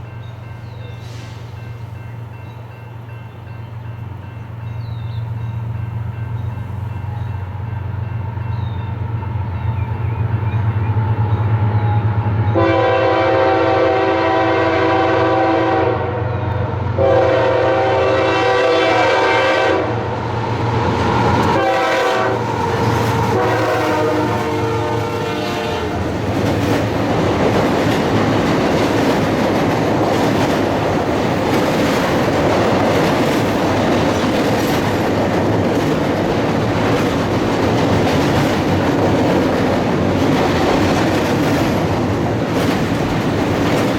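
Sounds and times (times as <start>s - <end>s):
locomotive engine hum: 0.0s - 43.9s
train cars rumbling: 0.0s - 43.9s
locomotive air horn blasts: 12.5s - 16.4s, 17.0s - 20.0s, 21.6s - 22.5s, 23.2s - 26.1s
wheels clicking over rail joints: 26.0s - 43.9s.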